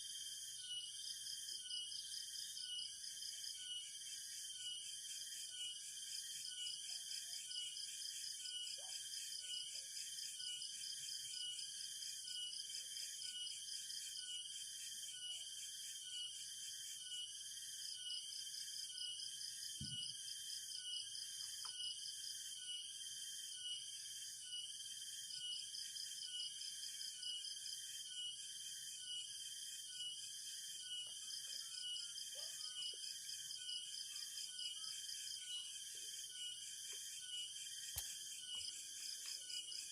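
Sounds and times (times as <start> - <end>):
insect chorus trilling: 0.0 - 39.9.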